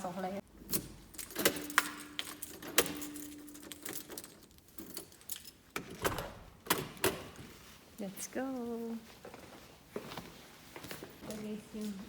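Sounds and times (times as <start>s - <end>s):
keys jangling: 0.6s - 7.3s.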